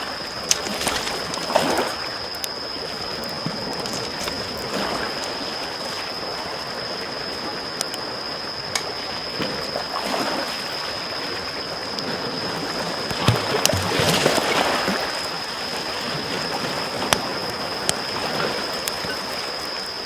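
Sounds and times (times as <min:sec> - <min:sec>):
small waves lapping on shore: 0:00.0 - 0:20.0
campfire crackling and popping: 0:00.1 - 0:05.3, 0:16.9 - 0:20.0.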